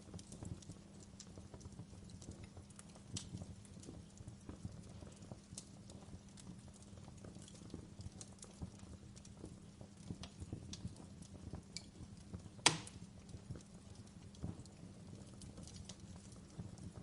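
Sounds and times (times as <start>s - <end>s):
faint steady hum: 0.0s - 17.0s
fire crackling: 0.0s - 17.0s
sharp pop: 12.6s - 13.0s.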